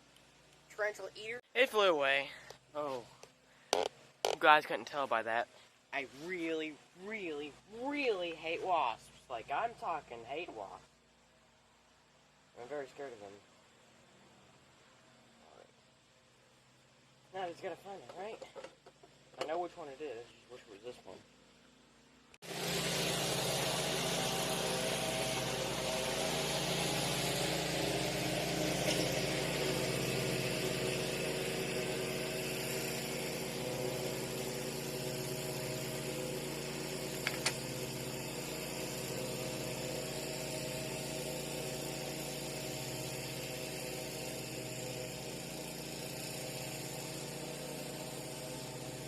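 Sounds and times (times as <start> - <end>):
small motor humming: 22.4 - 49.0.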